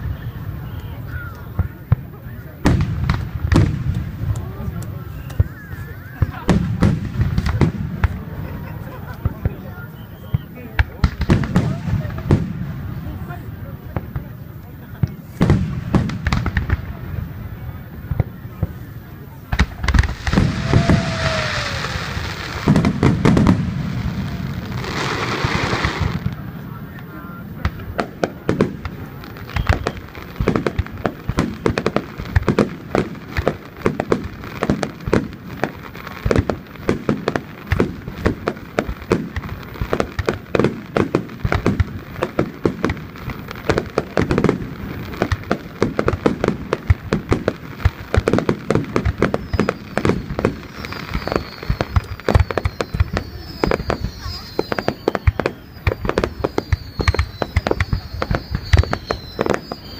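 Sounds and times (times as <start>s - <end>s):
fireworks bursts and booms: 0.0s - 59.9s
falling whistles: 9.8s - 10.7s, 20.3s - 22.6s, 29.4s - 30.1s, 49.2s - 59.9s.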